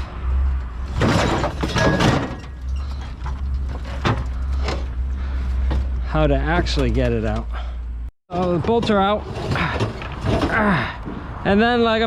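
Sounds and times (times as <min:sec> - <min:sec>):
metal parts rattling and scraping: 0:00.5 - 0:11.1.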